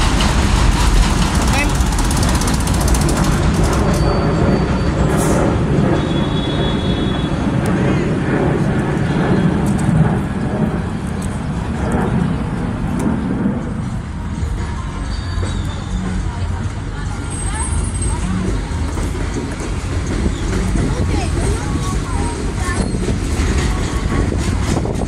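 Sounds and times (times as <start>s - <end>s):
elevated train rumbling: 0.0s - 25.0s
street traffic: 0.0s - 25.0s
voices: 14.0s - 25.0s.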